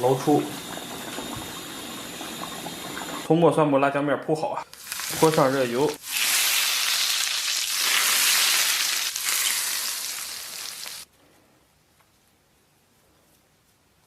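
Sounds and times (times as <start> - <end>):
hot oil sizzling: 0.0 - 3.3, 4.7 - 11.1.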